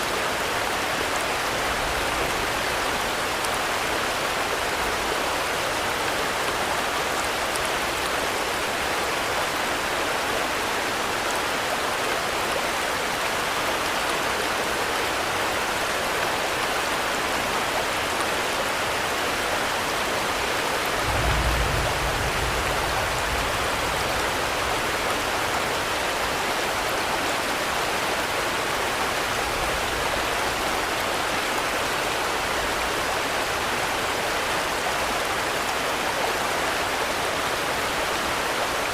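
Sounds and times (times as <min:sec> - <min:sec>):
heavy rain: 0:00.0 - 0:38.9
low rumble: 0:21.0 - 0:24.6.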